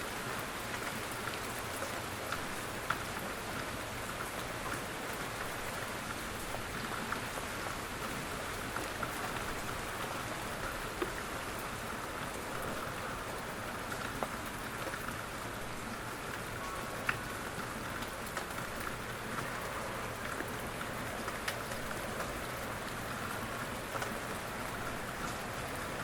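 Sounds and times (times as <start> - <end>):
gentle rainfall: 0.0 - 26.0.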